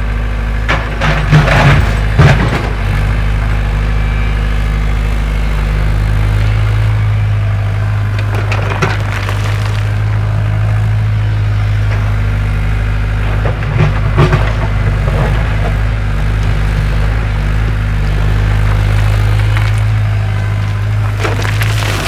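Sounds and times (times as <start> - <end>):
excavator engine humming: 0.0 - 22.0
knocks and scrapes: 8.2 - 10.1, 11.5 - 22.0.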